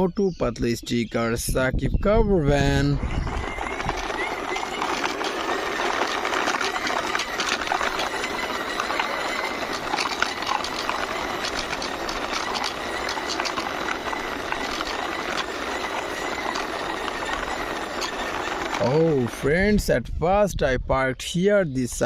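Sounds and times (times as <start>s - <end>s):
toy van wheels rolling and rattling: 2.4s - 19.8s.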